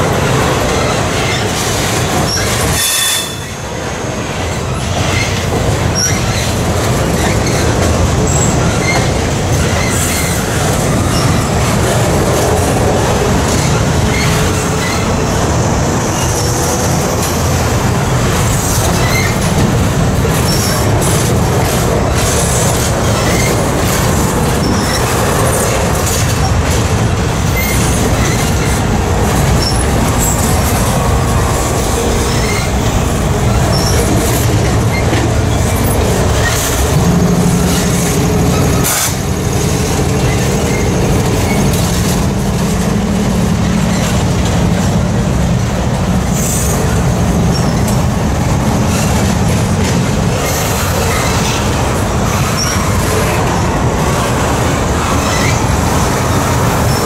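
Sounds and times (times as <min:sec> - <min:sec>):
freight cars rolling over bridge: 0:00.0 - 0:57.0.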